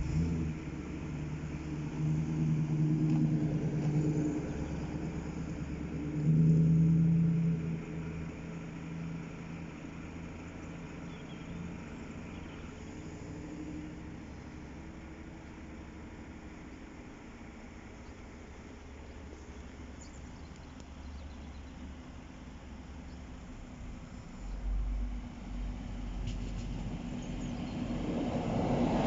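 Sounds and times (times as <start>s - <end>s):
vehicle engine passing: 0.0s - 16.6s, 23.5s - 29.0s.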